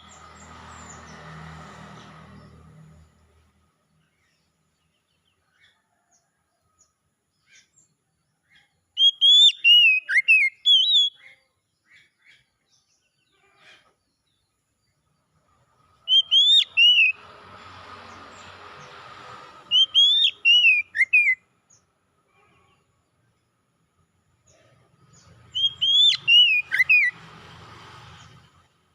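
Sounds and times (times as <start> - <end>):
magpie-robin singing: 8.5 - 12.5, 16.0 - 17.2, 19.6 - 21.4, 25.2 - 27.2.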